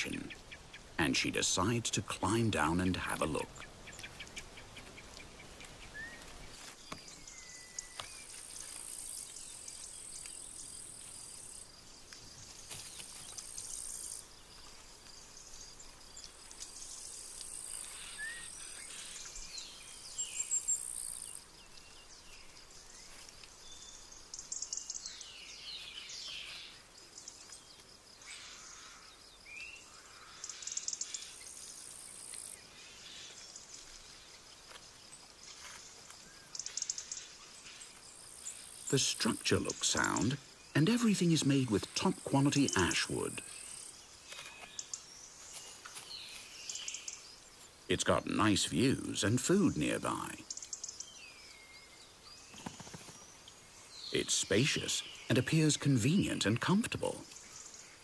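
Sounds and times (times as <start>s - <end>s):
bird chirps and calls: 0.0s - 8.4s, 36.3s - 47.3s
insect trill: 6.0s - 58.0s.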